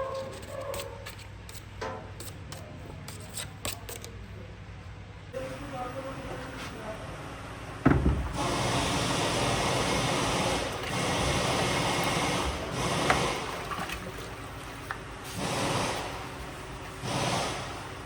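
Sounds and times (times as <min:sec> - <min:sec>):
compressed air hissing: 0:17.0 - 0:17.9.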